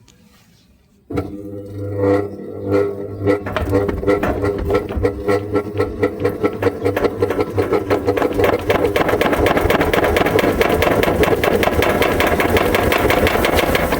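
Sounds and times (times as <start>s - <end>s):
washing machine hum: 1.2s - 13.9s
washing machine rattling: 3.2s - 13.9s.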